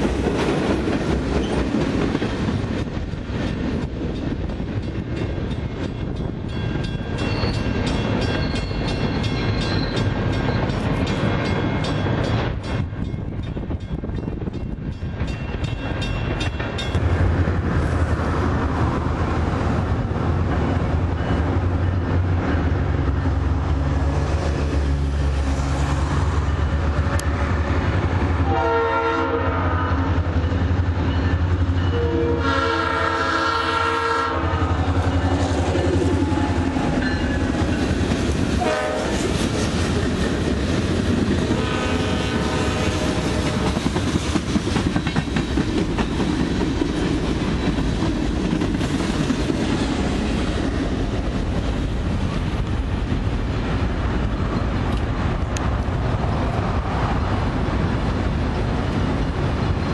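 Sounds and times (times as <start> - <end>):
train wheels clacking: 0.0 - 17.1, 42.9 - 56.0
locomotive horn blasts: 28.4 - 30.1, 31.9 - 34.8, 38.6 - 39.2, 41.5 - 43.6.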